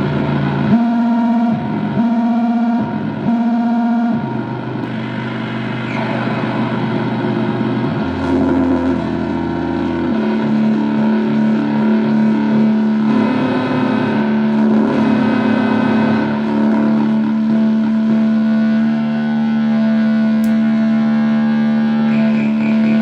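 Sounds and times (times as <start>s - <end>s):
distorted buzzing noise drone: 0.0s - 23.0s.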